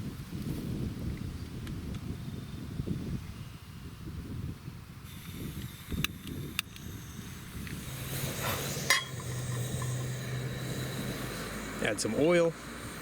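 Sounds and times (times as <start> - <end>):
steady low hum: 4.9 - 13.0.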